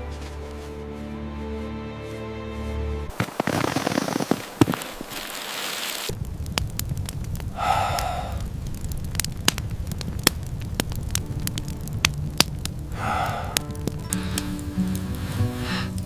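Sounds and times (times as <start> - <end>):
wood fire crackling and popping: 3.1 - 16.0
steady low rumble: 6.1 - 16.0.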